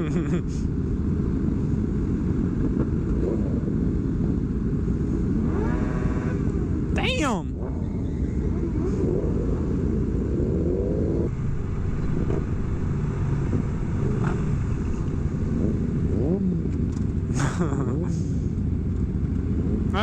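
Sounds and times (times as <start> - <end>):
motorcycle engines revving: 0.0 - 6.9, 7.6 - 20.0
motorcycles idling: 11.3 - 19.8.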